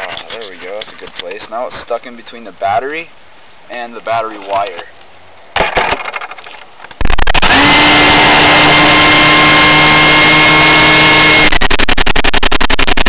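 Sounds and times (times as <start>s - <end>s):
electric motor and propeller whine: 7.0s - 13.0s.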